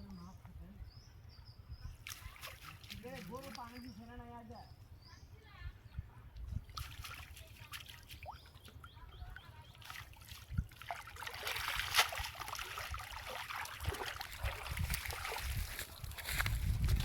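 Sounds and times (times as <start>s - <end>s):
water trickling and splashing: 1.9s - 4.5s, 6.3s - 17.0s
sharp water splash: 2.0s - 3.8s, 6.7s - 8.7s, 9.8s - 15.9s.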